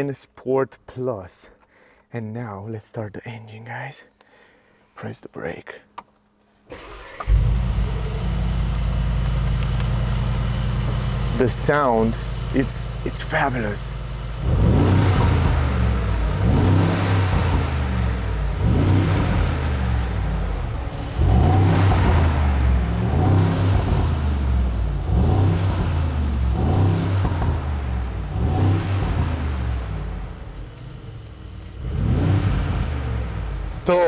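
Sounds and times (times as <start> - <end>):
car engine revving: 6.7 - 34.0
car engine idling: 6.8 - 34.0.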